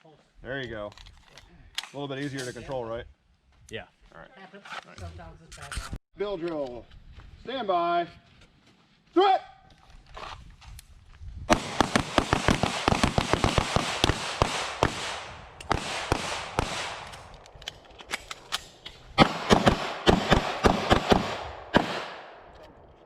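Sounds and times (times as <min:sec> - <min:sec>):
handgun shots: 0:11.5 - 0:22.5.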